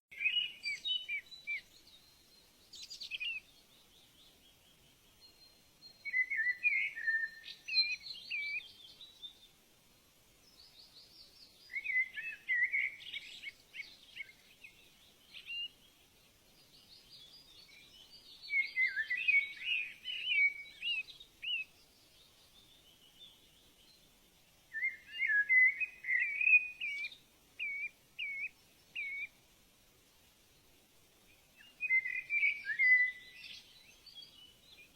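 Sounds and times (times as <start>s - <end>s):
faint steady hiss: 0.1s - 34.9s
songbird warbling: 5.4s - 9.3s, 11.5s - 15.8s, 16.9s - 22.7s, 24.7s - 29.4s, 31.6s - 34.9s.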